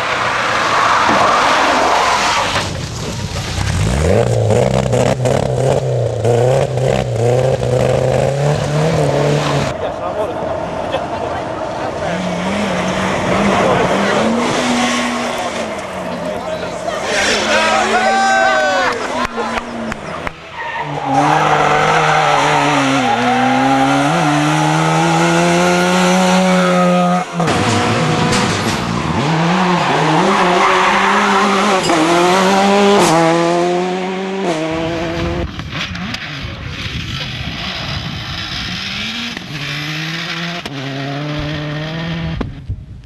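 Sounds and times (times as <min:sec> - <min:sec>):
rally car engine revving: 0:00.0 - 0:42.6.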